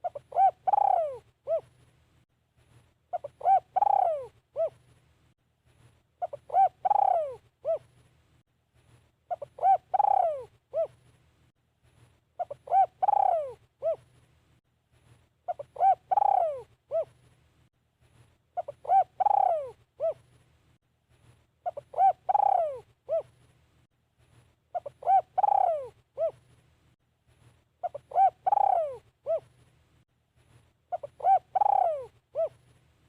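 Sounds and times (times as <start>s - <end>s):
dove cooing: 0.0s - 1.8s, 3.1s - 4.8s, 6.2s - 7.9s, 9.3s - 11.0s, 12.4s - 14.1s, 15.5s - 17.2s, 18.6s - 20.3s, 21.6s - 23.4s, 24.7s - 26.4s, 27.8s - 29.6s, 30.9s - 32.7s.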